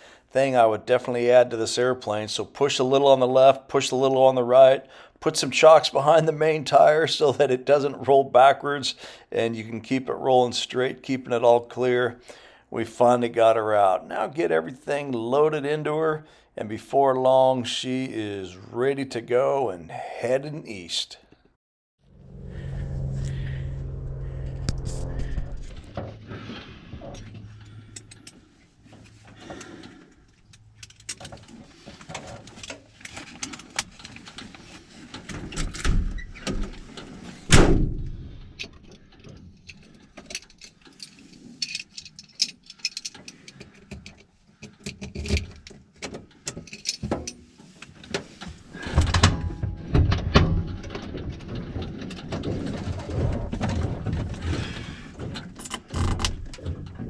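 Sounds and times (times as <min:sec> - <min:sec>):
gear clunking and rattling: 0:25.2 - 0:57.0
heavy thump: 0:37.5 - 0:38.4.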